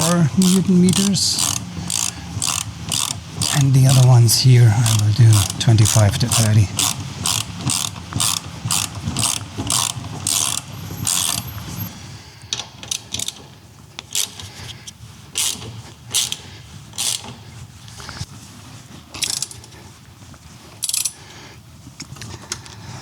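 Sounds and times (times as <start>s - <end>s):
ratchet wrench rasping: 0.0s - 11.9s, 15.4s - 16.4s, 17.0s - 17.3s.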